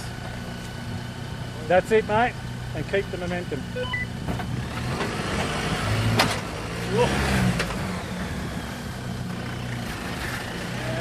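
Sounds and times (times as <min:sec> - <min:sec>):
car engine revving under load: 0:02.4 - 0:11.0.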